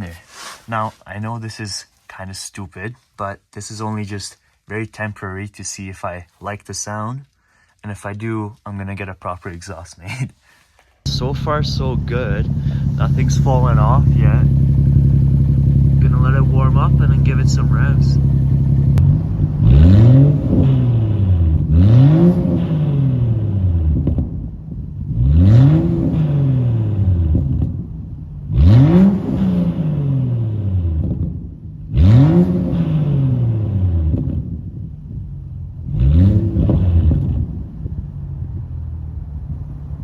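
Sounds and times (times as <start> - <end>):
car engine revving: 11.1 - 40.0.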